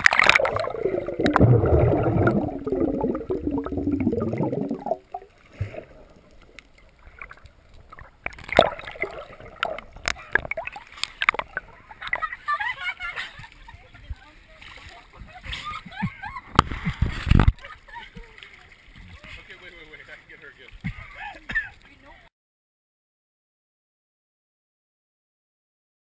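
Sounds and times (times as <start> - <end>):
water gurgling and bubbling: 0.0 - 12.3
knocks and splashes: 0.0 - 12.4.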